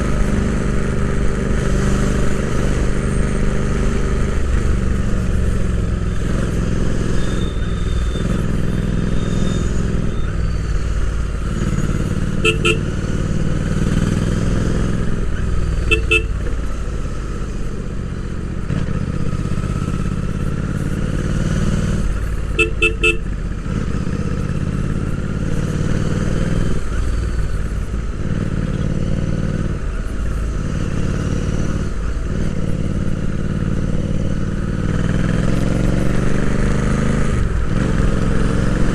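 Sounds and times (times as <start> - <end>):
motorcycle engine revving: 0.0 - 38.9
horn beeps: 7.0 - 10.9, 11.6 - 13.1, 15.8 - 16.4, 22.5 - 23.4.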